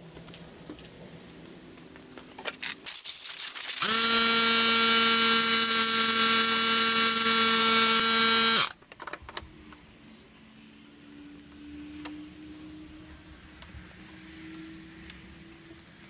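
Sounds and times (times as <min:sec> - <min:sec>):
wood router whining: 0:03.8 - 0:08.7.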